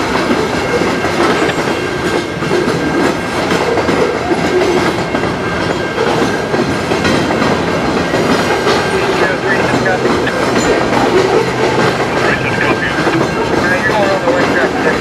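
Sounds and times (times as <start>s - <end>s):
wheels clicking over rail joints: 0.0s - 9.2s
steel wheels rumbling on rail: 0.0s - 15.0s.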